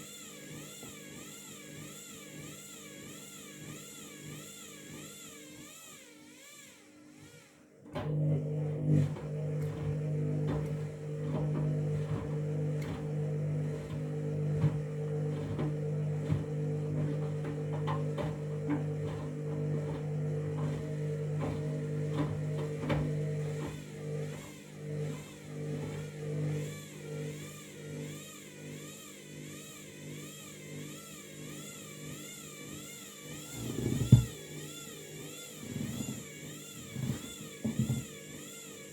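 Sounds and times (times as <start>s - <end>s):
washing machine motor hum: 0.0s - 6.4s, 7.0s - 38.9s
wavering motor whine: 0.0s - 38.9s.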